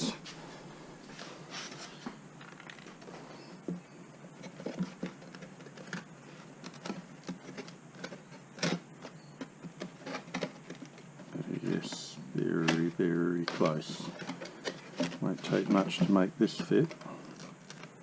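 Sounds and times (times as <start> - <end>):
foam sheet clicking and scratching: 4.4 - 18.0.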